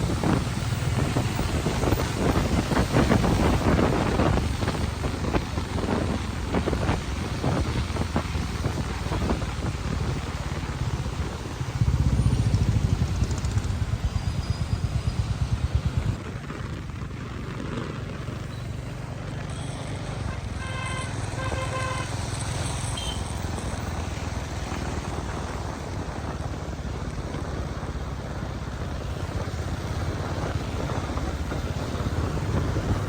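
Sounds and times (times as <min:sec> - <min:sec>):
wind buffeting microphone: 0:00.0 - 0:19.0, 0:23.6 - 0:33.0
motorcycle engine rumble: 0:00.0 - 0:33.0
vehicle horn short beeps: 0:19.5 - 0:22.1, 0:22.9 - 0:23.3.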